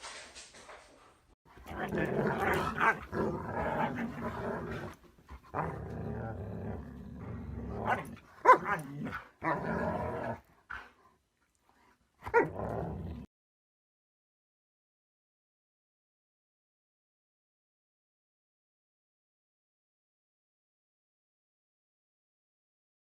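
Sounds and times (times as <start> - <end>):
dog growling and grumbling: 1.5 - 11.0, 12.2 - 13.3
dog yelping: 8.4 - 9.0.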